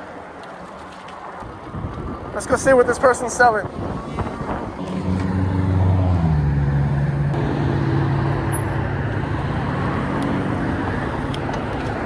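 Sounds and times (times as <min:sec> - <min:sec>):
street traffic noise: 0:00.0 - 0:12.0
engine running: 0:04.8 - 0:12.0.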